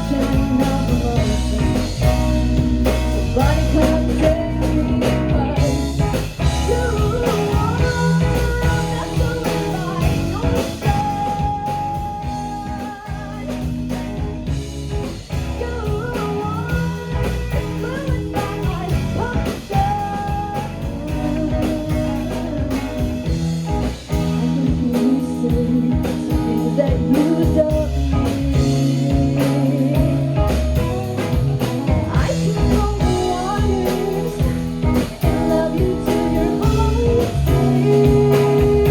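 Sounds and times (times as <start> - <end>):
person singing: 0.0 - 14.0, 15.3 - 23.4, 24.1 - 38.9
electric guitar: 0.0 - 38.9
steady drum beat: 0.0 - 38.9.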